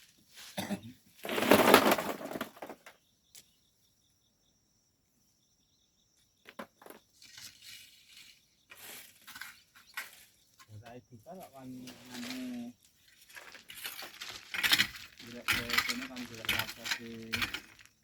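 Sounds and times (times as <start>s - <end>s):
sand being shovelled: 7.2s - 10.4s, 11.4s - 17.9s
faint clicks and scrapes: 7.2s - 10.8s, 11.7s - 18.0s.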